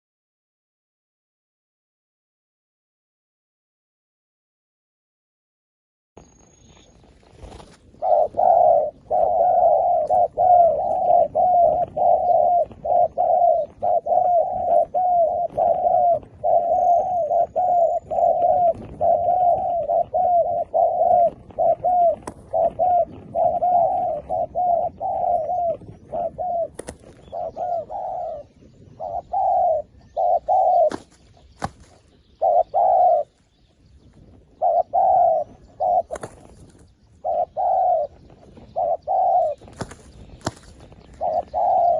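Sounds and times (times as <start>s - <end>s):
dove cooing: 7.4s - 41.9s.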